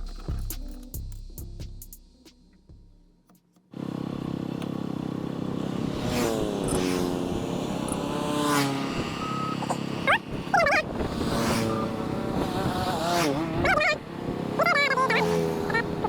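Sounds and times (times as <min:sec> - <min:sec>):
car engine revving: 0:03.7 - 0:16.0
short high squeals: 0:09.0 - 0:10.8, 0:11.4 - 0:12.3.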